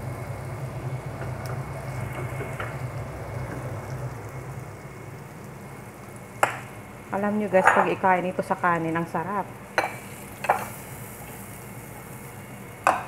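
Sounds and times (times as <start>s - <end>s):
sauce simmering and sizzling: 0.0s - 13.0s.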